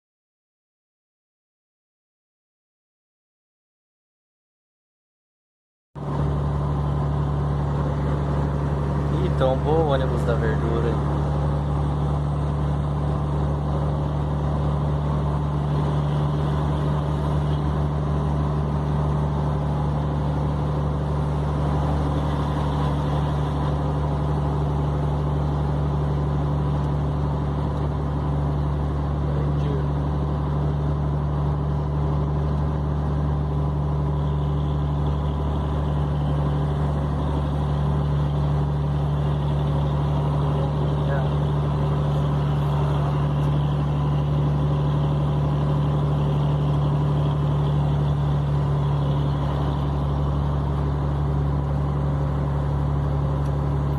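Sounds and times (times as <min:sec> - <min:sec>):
truck diesel engine droning: 0:06.0 - 0:53.9
tyre and road noise: 0:06.0 - 0:53.9.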